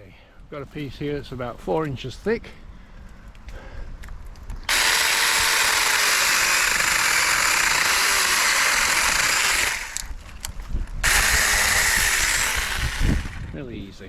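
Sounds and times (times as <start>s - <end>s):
mini chainsaw cutting branch: 4.7s - 10.2s, 11.0s - 13.5s.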